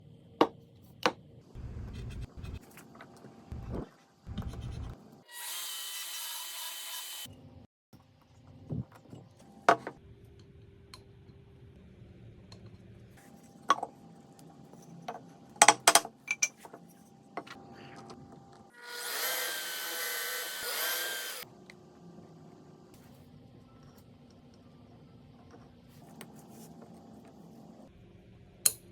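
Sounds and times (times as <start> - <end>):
power tool whining on wood: 18.8 - 21.4.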